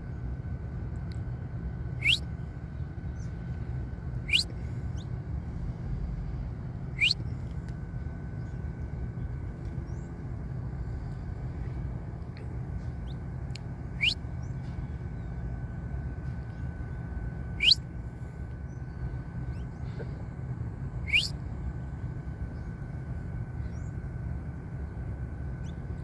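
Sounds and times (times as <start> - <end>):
faint chirps: 2.0 - 2.2, 4.3 - 5.1, 14.0 - 14.2, 17.6 - 17.8, 21.1 - 21.3
finch sharp upward calls: 4.3 - 4.5, 17.6 - 17.8, 21.1 - 21.3.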